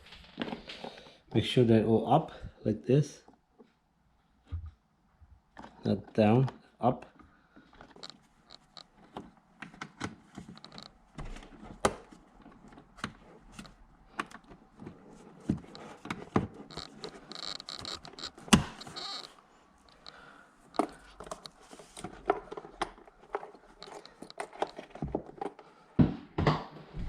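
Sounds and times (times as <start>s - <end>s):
plastic clips clicking and knocking: 19.9s - 25.6s.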